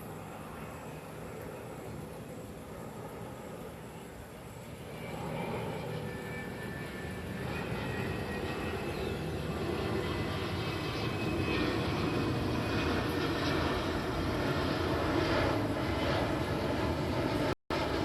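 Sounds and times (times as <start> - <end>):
jet engines rushing with whine: 0.0 - 18.0.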